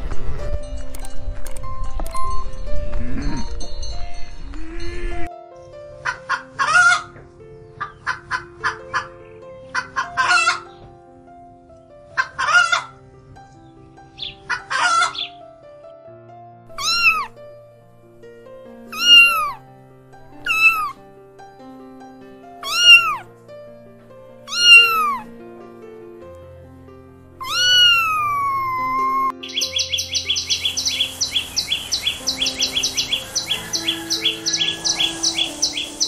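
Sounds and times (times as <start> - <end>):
soft background music: 0.0 - 36.0
cat meowing: 16.8 - 17.3, 18.9 - 19.6, 20.4 - 21.0, 22.6 - 23.3, 24.5 - 25.3, 27.4 - 29.4
hen clucking: 30.0 - 36.0.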